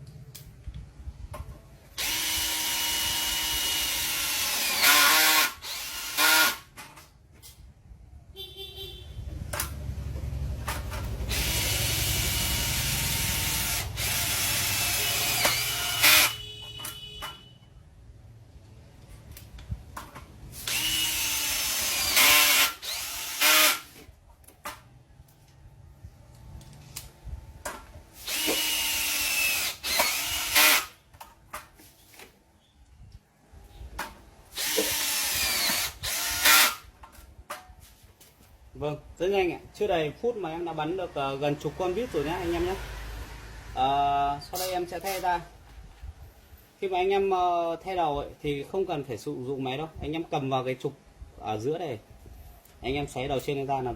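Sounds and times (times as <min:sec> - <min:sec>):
hammer drill driving a screw: 0:02.0 - 0:06.7, 0:11.3 - 0:16.4, 0:20.6 - 0:24.0, 0:28.2 - 0:31.0, 0:34.6 - 0:36.9.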